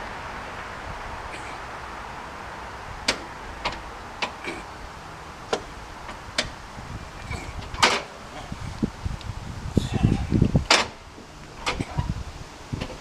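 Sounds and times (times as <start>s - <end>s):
sharp clicks or knocks: 10.7s - 11.0s.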